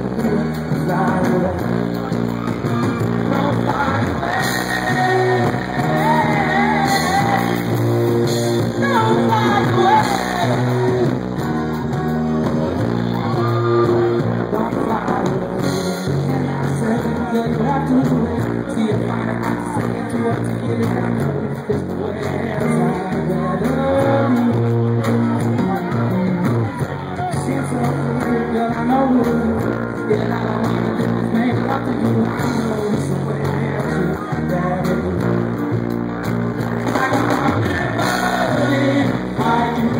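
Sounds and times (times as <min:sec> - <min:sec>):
live rock band playing: 0:00.0 - 0:39.9
man singing: 0:00.0 - 0:39.9.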